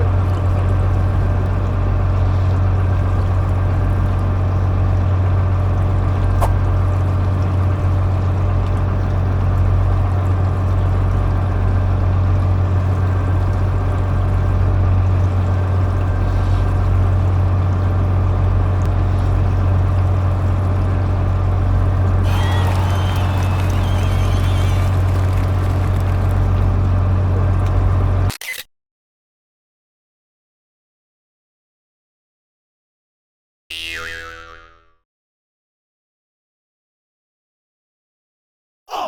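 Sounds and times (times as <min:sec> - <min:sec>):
boat motor humming: 0:00.0 - 0:28.3.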